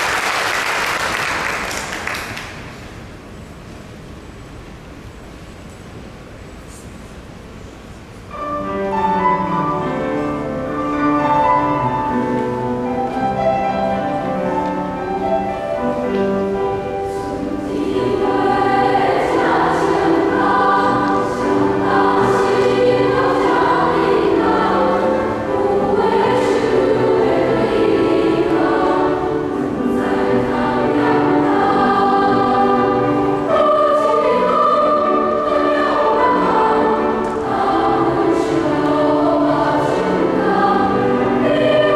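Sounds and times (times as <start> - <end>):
choir singing: 8.4 - 41.9.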